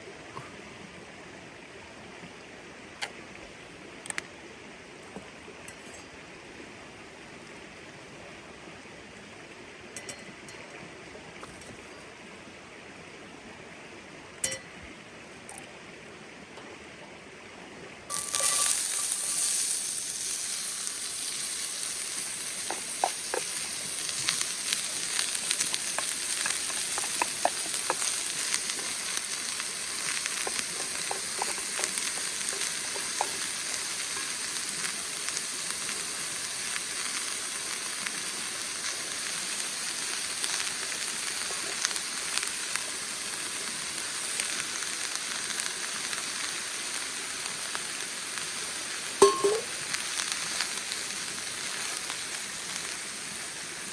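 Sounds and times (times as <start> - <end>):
food sizzling in a hot pan: 18.1 - 53.9
pops and crackles of frying: 18.1 - 53.9.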